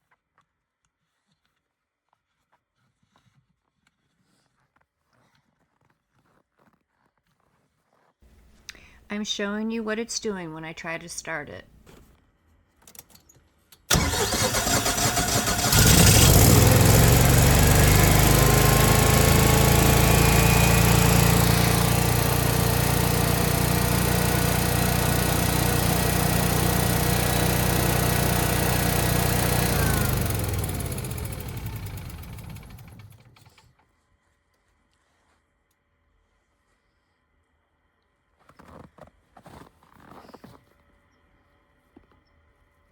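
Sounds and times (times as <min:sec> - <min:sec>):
generator engine running: 0:13.9 - 0:33.5
engine winding down: 0:13.9 - 0:33.6
generator engine cranking: 0:13.9 - 0:33.6.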